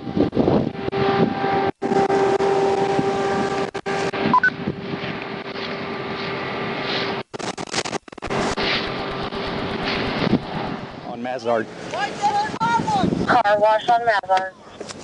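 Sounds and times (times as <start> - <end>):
road and wind noise: 0.0 - 15.0
vehicle hum: 0.0 - 15.0
two-note electronic beep: 4.3 - 4.6.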